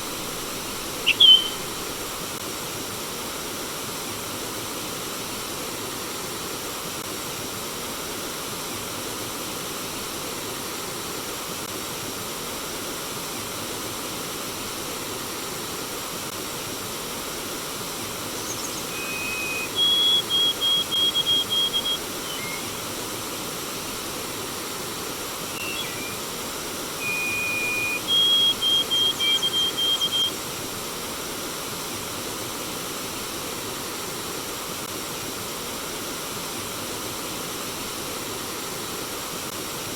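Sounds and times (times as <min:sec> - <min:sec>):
songbird singing: 0:00.0 - 0:02.2, 0:18.2 - 0:22.9, 0:25.5 - 0:26.4, 0:27.0 - 0:30.4
stream water flowing: 0:00.0 - 0:02.8, 0:16.8 - 0:34.7.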